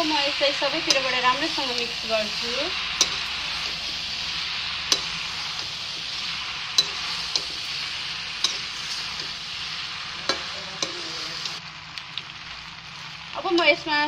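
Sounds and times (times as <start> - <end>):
pasta sizzling in metal pan: 0.0 - 14.0
metal utensil clinking on pan: 0.8 - 1.9, 3.0 - 3.8, 4.9 - 5.8, 6.8 - 7.6, 8.4 - 9.4.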